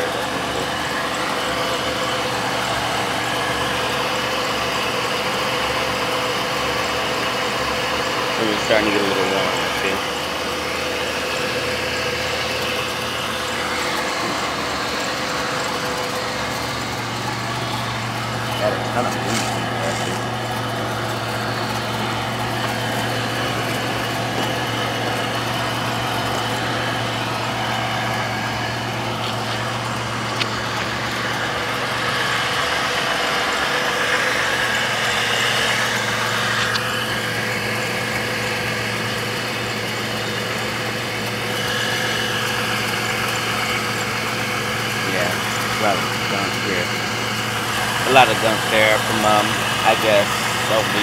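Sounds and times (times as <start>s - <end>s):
car engine idling: 0.0s - 51.0s.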